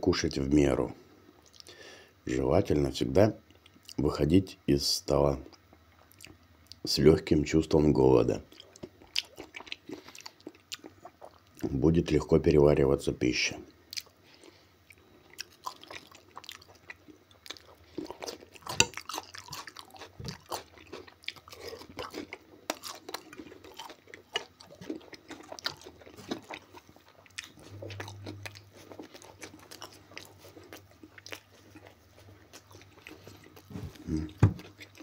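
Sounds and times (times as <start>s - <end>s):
crunchy chewing and biting: 8.5s - 11.7s, 13.9s - 35.0s.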